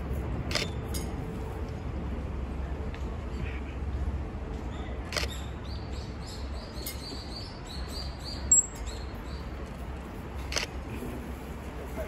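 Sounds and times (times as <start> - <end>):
single click: 0.5 - 0.8.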